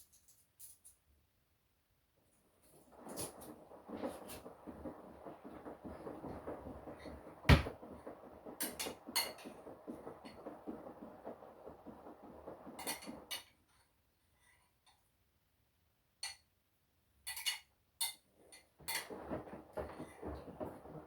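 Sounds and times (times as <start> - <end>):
washing machine drum rumbling: 2.9 - 13.4, 18.8 - 21.0.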